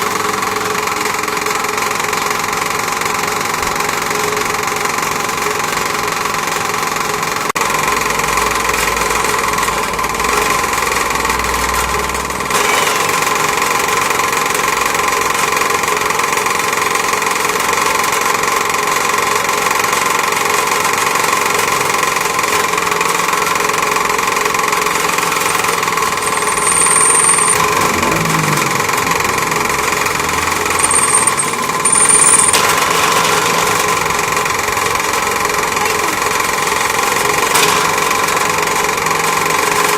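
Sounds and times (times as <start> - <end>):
lathe motor whine and rattle: 0.0 - 39.9
high-pitched squeals: 25.0 - 32.9.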